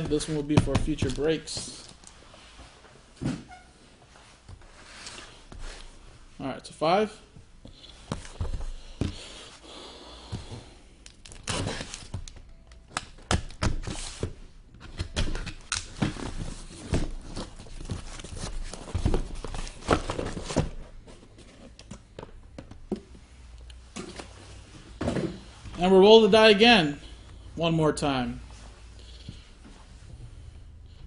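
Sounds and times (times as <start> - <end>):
cardboard boxes set down: 25.0 - 25.5.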